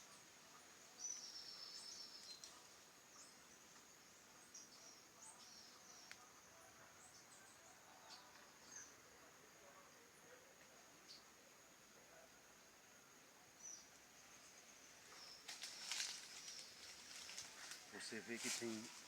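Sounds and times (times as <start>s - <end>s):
birds chirping: 0.0s - 11.4s, 13.5s - 19.0s
high insect drone: 7.6s - 19.0s.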